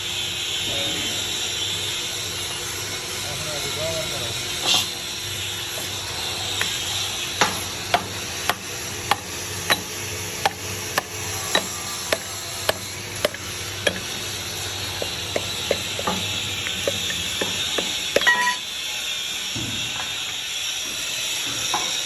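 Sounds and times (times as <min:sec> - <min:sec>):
steady hiss: 0:05.6 - 0:19.2.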